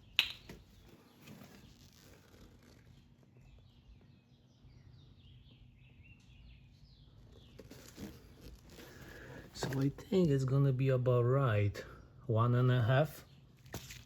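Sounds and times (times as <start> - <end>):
faint bird chirping: 0.0 - 10.7.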